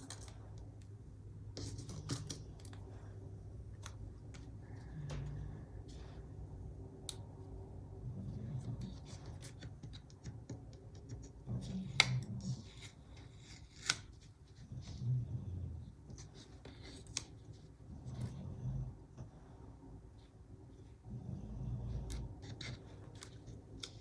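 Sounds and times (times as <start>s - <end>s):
scissors snipping paper: 8.6s - 14.3s.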